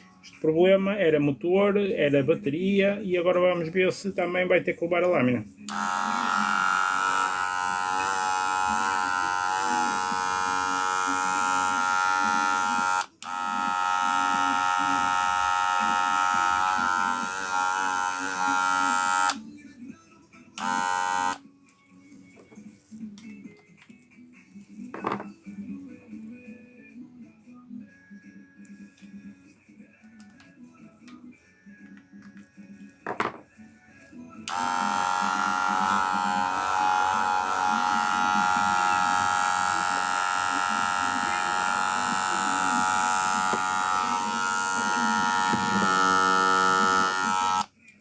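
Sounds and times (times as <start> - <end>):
hair clipper buzzing: 5.6 - 19.4, 20.6 - 21.4, 34.4 - 47.7.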